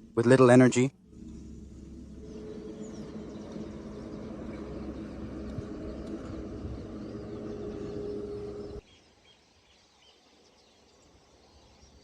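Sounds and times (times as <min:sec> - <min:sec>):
faint steady hum: 0:00.0 - 0:08.8
faint bird chirps: 0:01.1 - 0:12.0.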